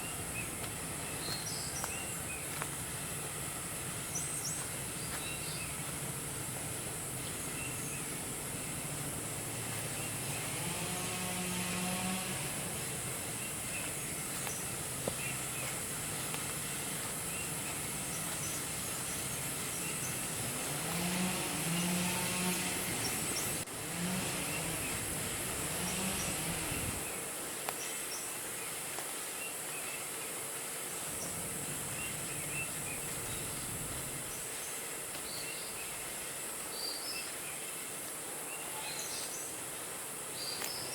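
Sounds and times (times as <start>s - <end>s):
distant motor drone: 0.0s - 27.4s, 31.0s - 35.9s
insect chorus: 0.0s - 40.9s.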